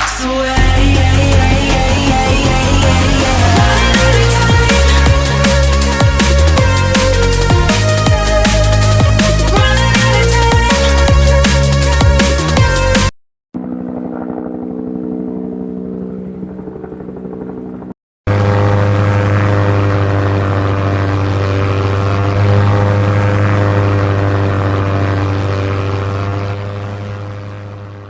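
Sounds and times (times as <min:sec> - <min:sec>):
small motor buzzing hum: 0:26.2 - 0:28.0.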